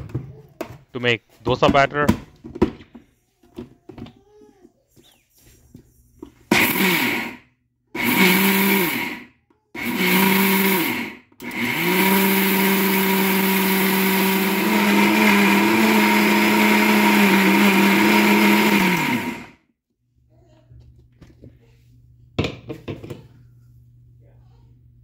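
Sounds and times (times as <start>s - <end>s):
mixer grinder motor running: 6.5s - 7.4s, 8.0s - 19.6s.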